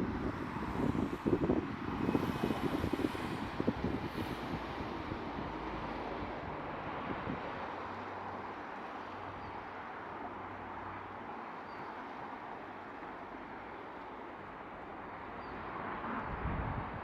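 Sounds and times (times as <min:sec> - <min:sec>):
wind buffeting the microphone: 0:00.0 - 0:08.0, 0:16.1 - 0:17.0
strong gusty wind rushing: 0:00.0 - 0:08.3, 0:15.6 - 0:17.0.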